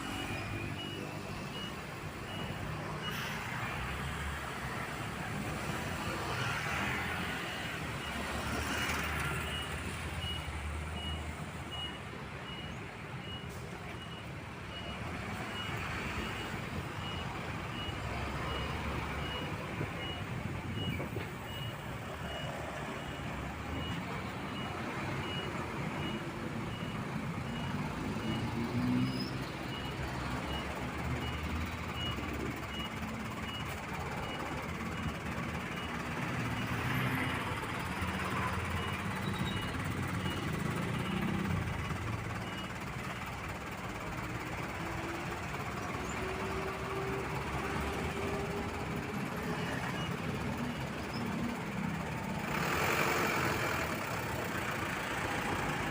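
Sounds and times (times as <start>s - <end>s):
truck reversing alarm beeps: 0.0s - 55.9s
diesel engine idling: 29.5s - 55.9s.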